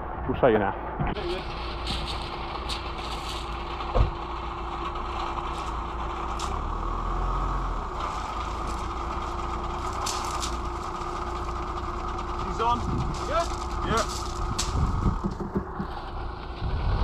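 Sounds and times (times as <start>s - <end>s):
van engine idling: 1.2s - 17.0s
low thump: 3.9s - 4.2s.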